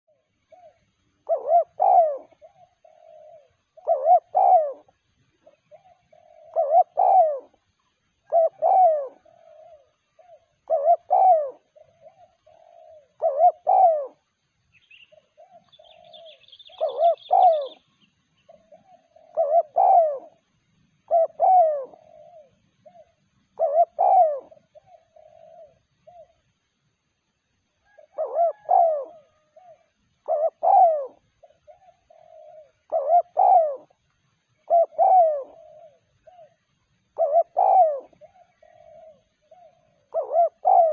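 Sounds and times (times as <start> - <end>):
dove cooing: 0.1 - 40.9.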